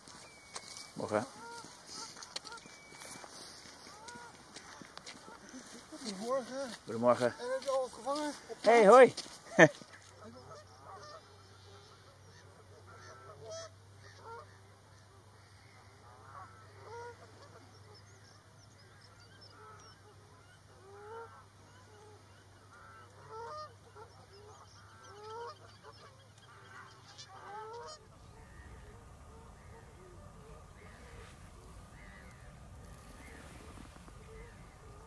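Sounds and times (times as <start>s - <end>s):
faint bird calls: 0.0s - 35.0s
faint low hum: 9.9s - 35.0s.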